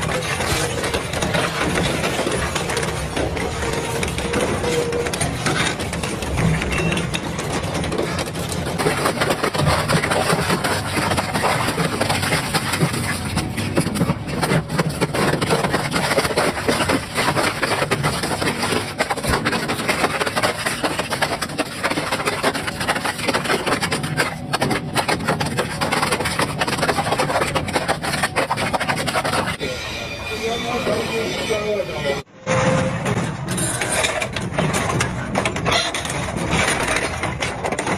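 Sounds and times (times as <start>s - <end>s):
shredder crunching material: 7.5s - 29.6s.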